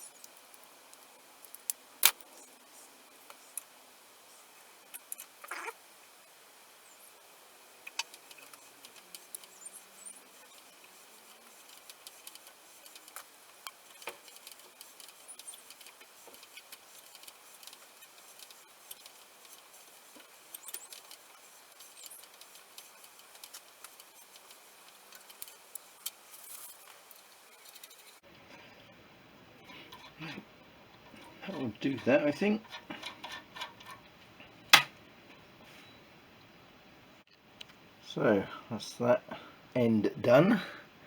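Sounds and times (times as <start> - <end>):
hand tools clicking and scraping metal: 7.9 - 28.2, 29.6 - 35.0.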